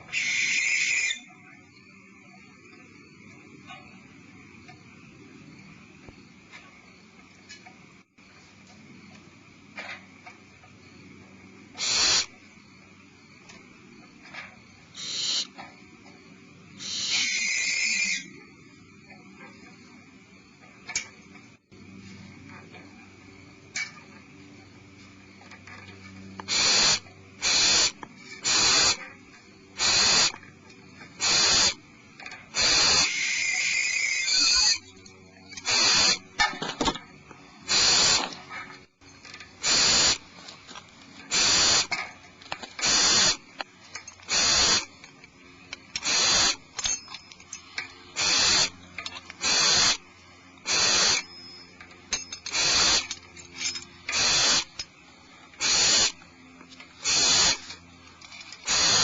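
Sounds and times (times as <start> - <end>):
owl screechy call: 0.0 - 1.3, 11.8 - 12.4, 15.0 - 15.6, 16.8 - 18.4, 26.5 - 29.0, 29.8 - 30.4, 32.6 - 34.9, 35.6 - 36.3, 39.6 - 40.2, 41.3 - 42.0, 42.8 - 43.4, 44.3 - 44.9, 46.0 - 46.6, 48.2 - 48.7, 49.4 - 50.0, 50.7 - 51.7, 54.2 - 54.6, 55.6 - 56.1, 57.0 - 57.6, 58.7 - 59.0
owl hissing snore calls: 0.1 - 1.2, 11.8 - 12.4, 14.9 - 15.6, 16.8 - 18.3, 26.5 - 29.0, 29.8 - 30.4, 31.2 - 31.8, 32.5 - 34.8, 35.6 - 36.3, 37.6 - 38.3, 39.6 - 40.2, 41.3 - 42.0, 42.8 - 43.4, 44.3 - 45.0, 46.0 - 46.7, 48.2 - 48.8, 49.4 - 50.0, 50.6 - 51.3, 52.5 - 53.1, 54.1 - 54.7, 55.6 - 56.2, 57.0 - 57.7, 58.6 - 59.0.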